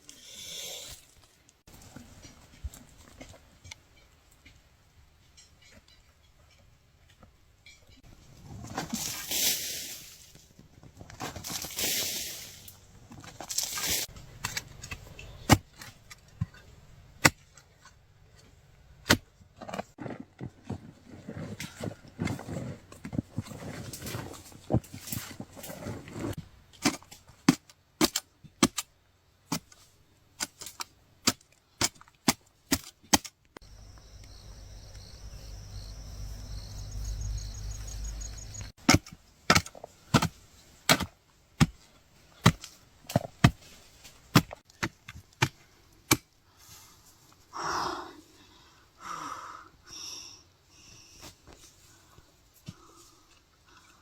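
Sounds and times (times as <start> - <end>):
digging tool chopping into ground: 26.8 - 28.9, 38.8 - 43.6, 44.3 - 46.3
low rumble: 33.7 - 38.7.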